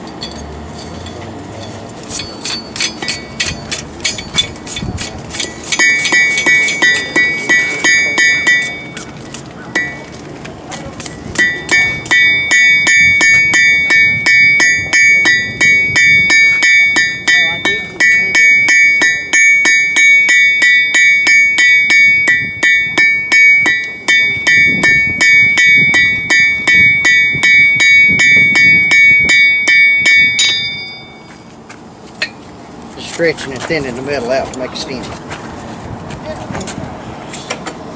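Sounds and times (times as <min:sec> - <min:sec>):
hammer striking metal on anvil: 0:00.0 - 0:09.1, 0:09.7 - 0:10.1, 0:11.3 - 0:31.5.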